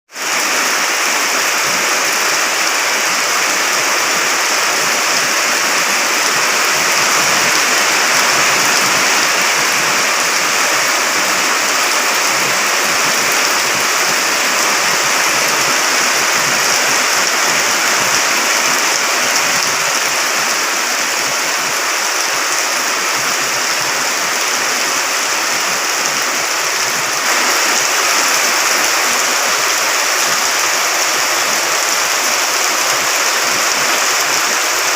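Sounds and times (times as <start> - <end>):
water rushing: 0.1 - 34.9.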